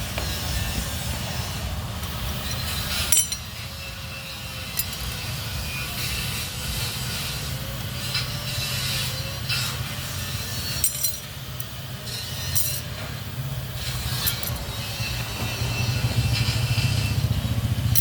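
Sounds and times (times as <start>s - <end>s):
metal tools clinking: 2.4s - 5.8s, 8.1s - 15.6s.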